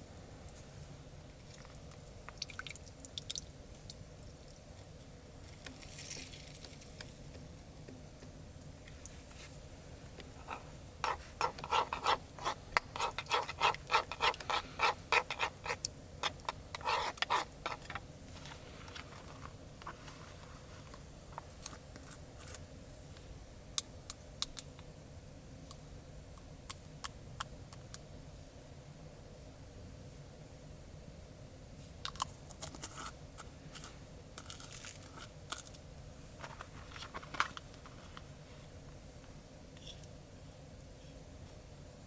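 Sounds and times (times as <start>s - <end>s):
scraping and rubbing strokes: 10.3s - 22.6s.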